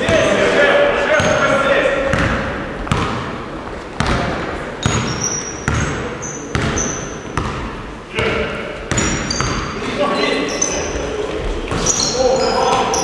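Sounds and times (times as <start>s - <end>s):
basketball bouncing on hard floor: 2.1s - 3.3s, 4.0s - 7.7s, 8.9s - 9.7s.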